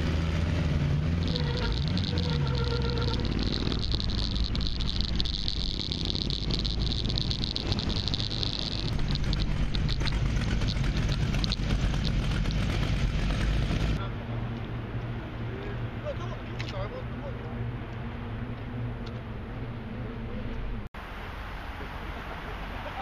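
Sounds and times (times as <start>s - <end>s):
muffled motorcycle engine running: 0.0s - 14.1s.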